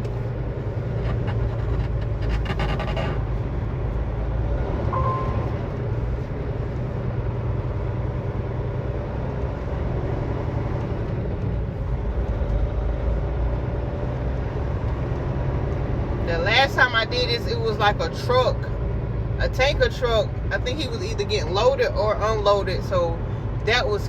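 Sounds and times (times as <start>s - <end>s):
diesel truck engine running: 0.0s - 24.0s
brief high tone: 4.9s - 5.8s.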